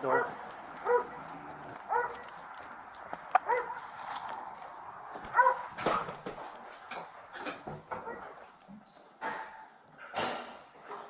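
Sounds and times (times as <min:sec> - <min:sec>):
dog barking: 0:00.0 - 0:02.4, 0:03.3 - 0:04.0, 0:05.3 - 0:06.2, 0:07.9 - 0:08.4.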